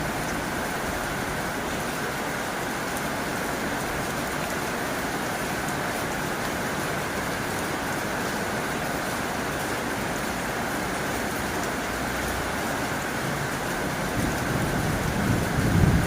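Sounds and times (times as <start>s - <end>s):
heavy rain on a tin roof: 0.0s - 16.0s.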